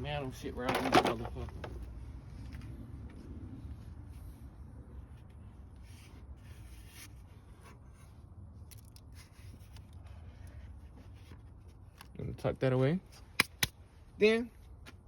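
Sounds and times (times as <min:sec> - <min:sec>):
car parts scraping and rubbing: 0:00.6 - 0:01.9, 0:04.0 - 0:12.1.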